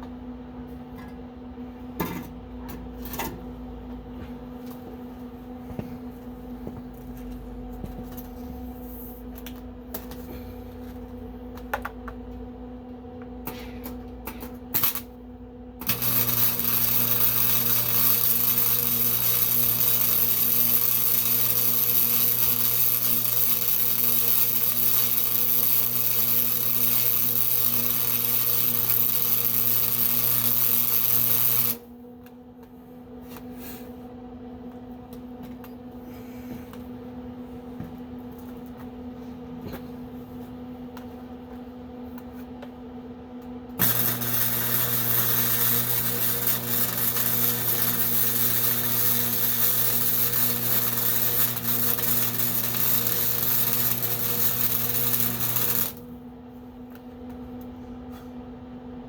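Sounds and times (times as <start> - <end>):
welding machine hum: 13.8 - 32.1, 43.7 - 56.3
welding arc hissing: 14.8 - 15.1, 15.8 - 31.8, 43.8 - 56.0.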